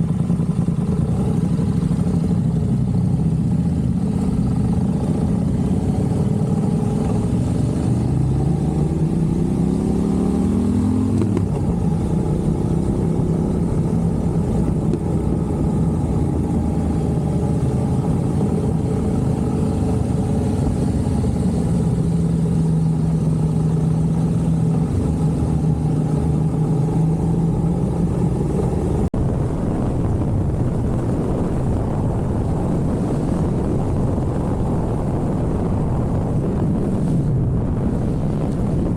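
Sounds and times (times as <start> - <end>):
road and wind noise: 0.0 - 38.9
vehicle engine speeding up: 5.6 - 22.5, 24.7 - 38.9.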